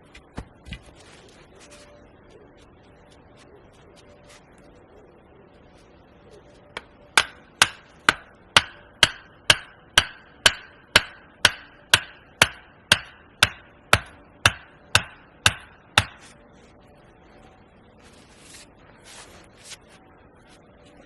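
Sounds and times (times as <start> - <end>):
hammer blows ringing: 6.8 - 16.4.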